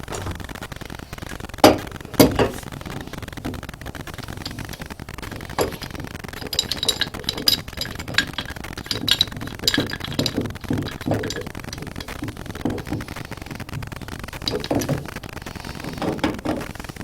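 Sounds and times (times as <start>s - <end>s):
metal tools clinking: 5.6s - 13.0s, 14.5s - 15.1s.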